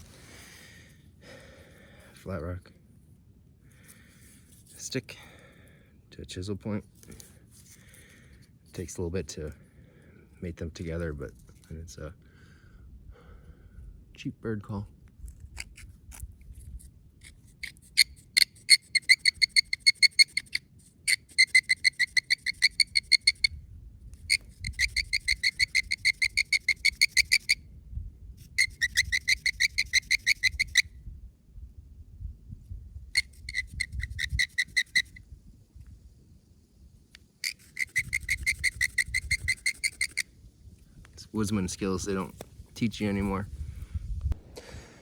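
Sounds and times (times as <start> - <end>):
friction bird call chirps: 37.4 - 40.2.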